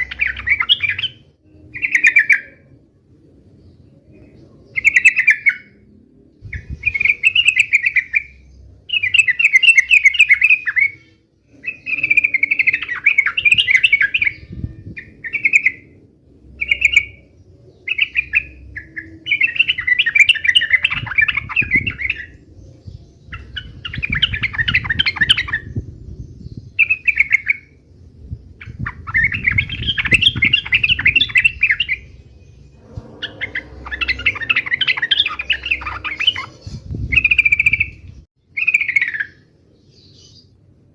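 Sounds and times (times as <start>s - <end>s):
bulbul chattering calls: 33.2s - 38.0s.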